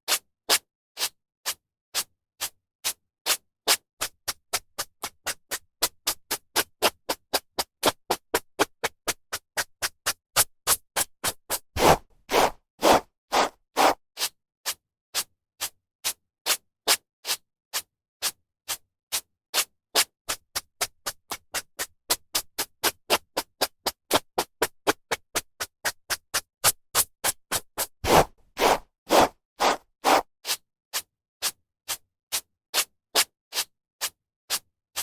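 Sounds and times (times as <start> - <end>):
hairbrush brushing through hair: 11.8 - 14.0, 28.0 - 30.2.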